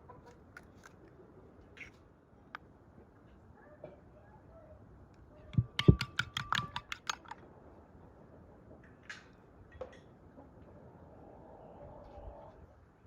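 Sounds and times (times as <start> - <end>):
rapid sharp knocks: 5.6 - 7.3.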